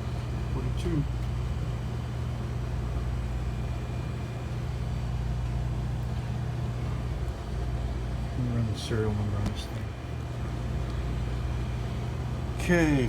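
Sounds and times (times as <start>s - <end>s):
refrigeration unit humming: 0.0s - 13.0s.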